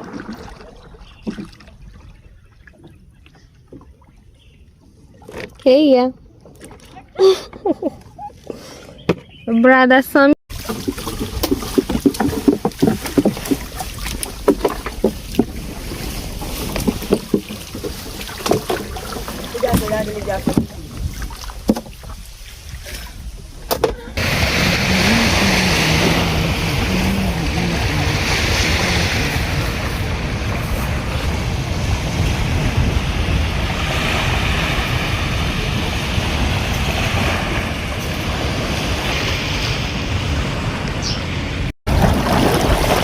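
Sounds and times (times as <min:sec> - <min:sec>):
water splashing against boat: 0:00.0 - 0:09.4, 0:10.5 - 0:43.0
wind rumbling on microphone: 0:10.5 - 0:43.0.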